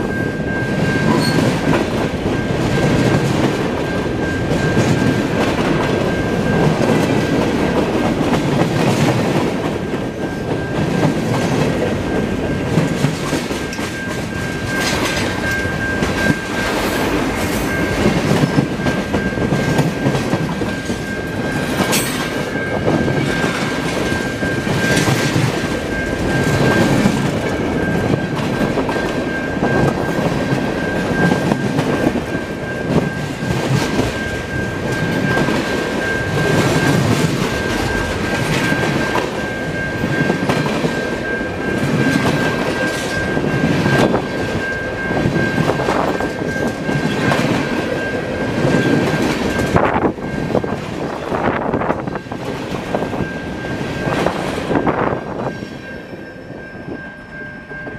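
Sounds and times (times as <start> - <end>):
train wheels clacking over rail joints: 1.0 - 32.3.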